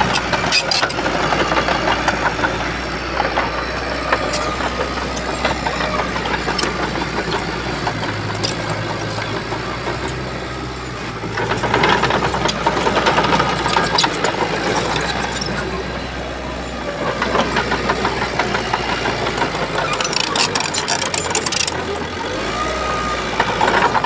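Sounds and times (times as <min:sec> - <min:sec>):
bulldozer diesel engine under load: 0:00.0 - 0:24.0
rapid metallic clanking: 0:17.6 - 0:22.2.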